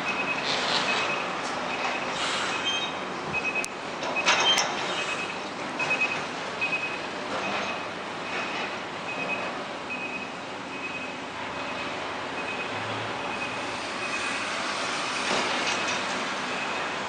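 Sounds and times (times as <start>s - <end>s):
truck reversing beeper: 0.0s - 14.8s, 15.7s - 17.0s
heavy truck traffic: 0.0s - 17.0s.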